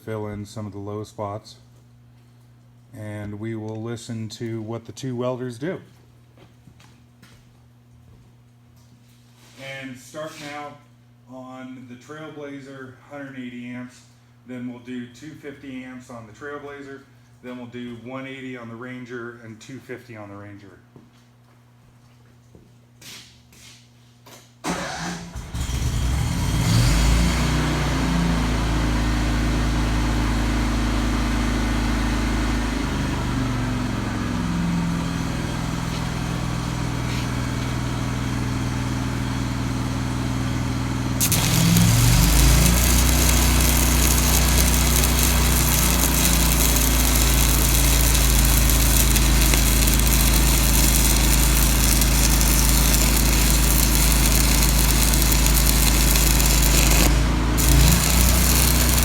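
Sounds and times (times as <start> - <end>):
welder engine running: 41.1 - 59.0
welding arc crackling hiss: 41.2 - 59.0.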